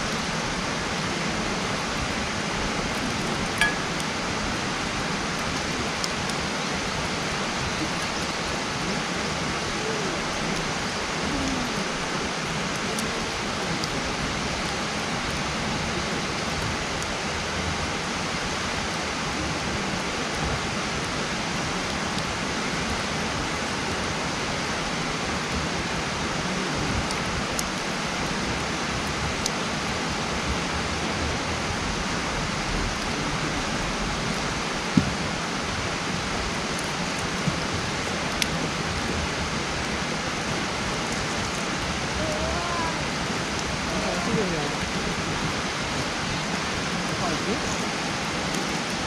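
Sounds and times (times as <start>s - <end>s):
campfire crackling: 0.0s - 49.0s
burning wood popping: 2.7s - 8.6s.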